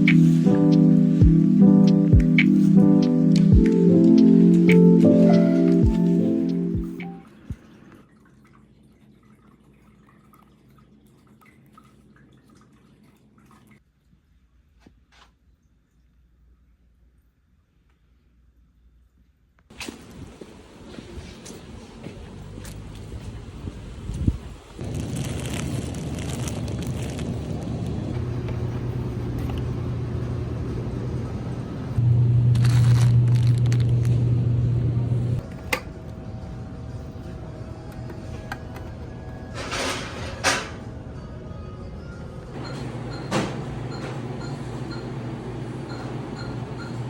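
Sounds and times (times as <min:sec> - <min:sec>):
vehicle engine rumble: 0:19.9 - 0:41.0
low hum: 0:24.8 - 0:42.7.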